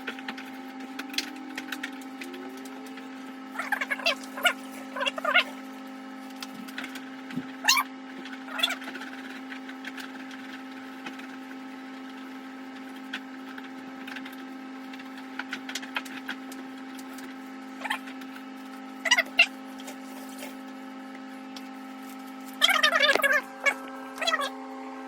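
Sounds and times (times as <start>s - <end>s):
steady low hum: 0.0s - 25.0s
squeaks of wiping in refrigerator: 2.3s - 5.8s, 6.6s - 10.8s, 17.1s - 20.8s, 21.9s - 24.6s.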